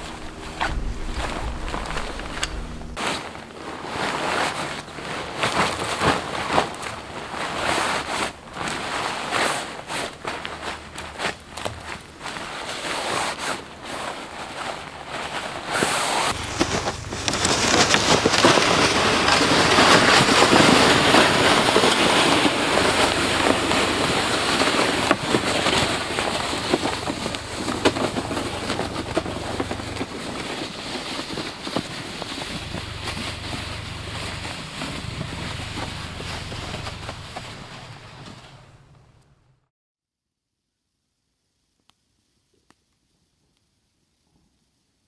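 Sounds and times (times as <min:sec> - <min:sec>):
strong wind gusting: 0:00.0 - 0:03.0, 0:32.4 - 0:39.0.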